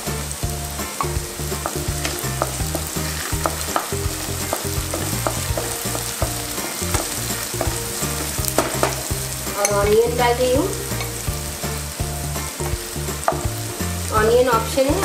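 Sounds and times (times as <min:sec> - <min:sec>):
food sizzling in hot oil: 0:00.0 - 0:15.0
wooden spatula scraping pan: 0:01.0 - 0:09.8.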